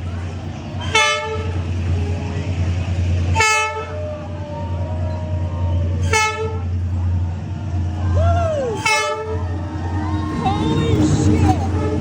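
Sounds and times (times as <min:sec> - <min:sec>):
steady low rumble: 0:00.0 - 0:12.0
train horn blasts: 0:00.8 - 0:01.6, 0:03.3 - 0:04.0, 0:06.0 - 0:06.7, 0:08.8 - 0:09.6, 0:11.7 - 0:12.0.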